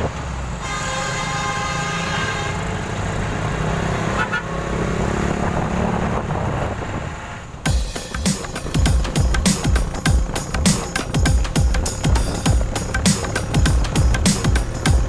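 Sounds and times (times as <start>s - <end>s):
vehicle engine rumbling: 0.0s - 15.0s
steady pitched tone: 7.7s - 15.0s.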